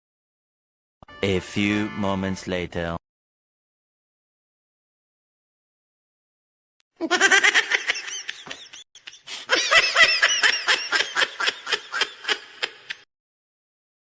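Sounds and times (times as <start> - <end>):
person laughing hard: 7.0 - 13.0.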